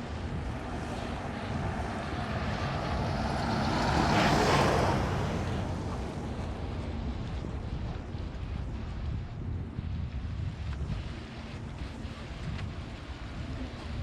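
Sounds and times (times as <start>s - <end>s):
car passing by: 0.0s - 7.8s
wind: 0.0s - 14.0s.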